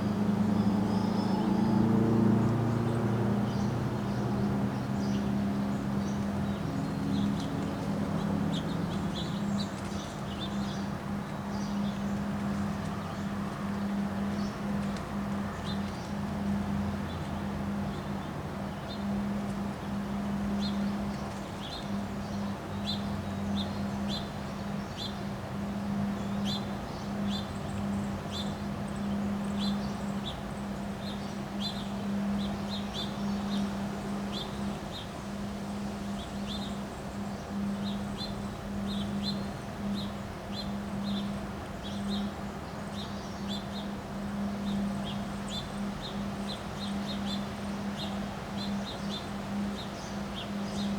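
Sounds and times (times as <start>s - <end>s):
constant rushing noise: 0.0s - 50.9s
steady low hum: 0.0s - 50.9s
small birds chirping: 19.9s - 50.9s.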